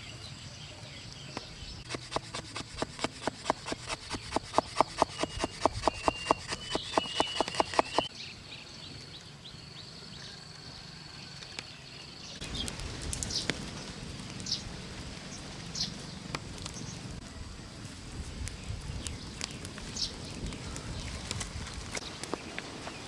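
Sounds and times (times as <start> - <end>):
birds calling: 0.0 - 9.3
scraping strokes on wood: 1.8 - 8.1.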